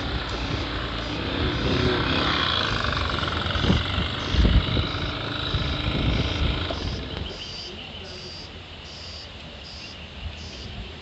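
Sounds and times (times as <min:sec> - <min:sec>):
wind gusting against microphone: 0:00.0 - 0:07.5.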